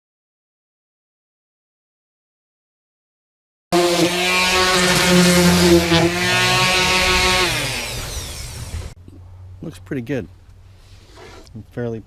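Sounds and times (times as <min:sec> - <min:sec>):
orbital sander sanding wood: 0:03.7 - 0:09.0
sander motor winding down: 0:03.8 - 0:09.0.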